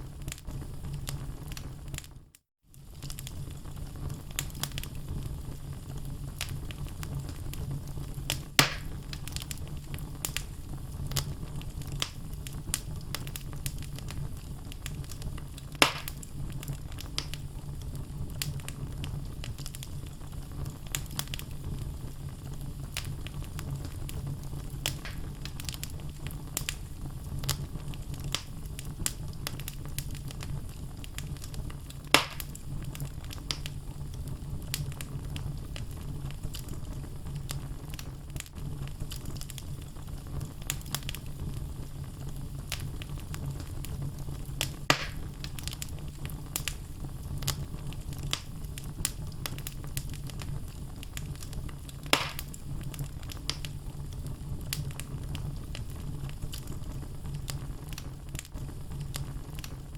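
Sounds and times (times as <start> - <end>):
fire flames rumbling: 0.0 - 59.9
fire popping: 0.0 - 59.9
logs crackling: 8.3 - 17.4, 22.9 - 26.8, 27.4 - 33.8, 44.5 - 53.7.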